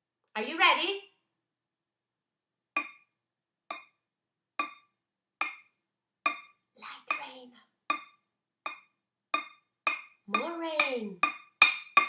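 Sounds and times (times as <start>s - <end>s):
wooden spoon tapping metal pot: 2.7s - 7.3s, 7.9s - 12.0s.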